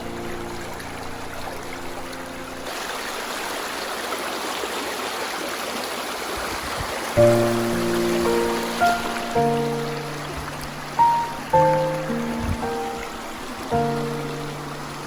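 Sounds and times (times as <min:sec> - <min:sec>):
stream flowing: 0:00.0 - 0:15.0
sustained music notes: 0:07.2 - 0:15.0.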